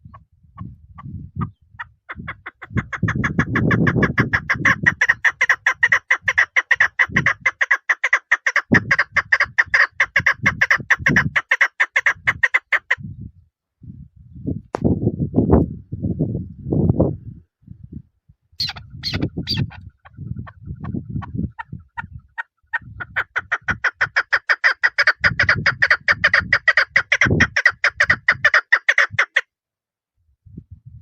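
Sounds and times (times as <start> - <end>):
partridge clucking and chucking: 1.8 - 13.0, 18.6 - 22.2, 22.8 - 29.4.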